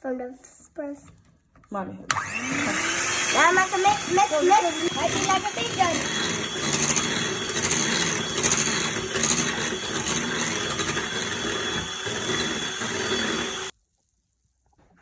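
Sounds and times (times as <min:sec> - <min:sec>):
electric mixer beating batter: 0:02.1 - 0:13.7.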